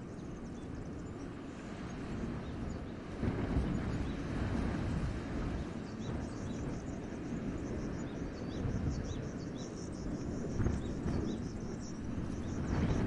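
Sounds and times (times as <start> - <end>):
wind rushing through forest: 0.0 - 13.0
birds twittering: 5.4 - 13.0.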